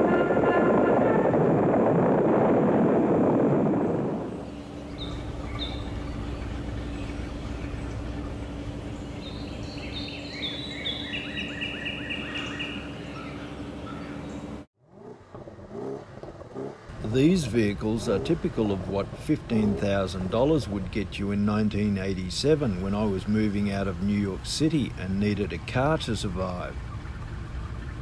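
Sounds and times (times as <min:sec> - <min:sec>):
faint steady hum: 0:03.1 - 0:14.7, 0:16.9 - 0:28.0
bird chirps: 0:04.3 - 0:14.6.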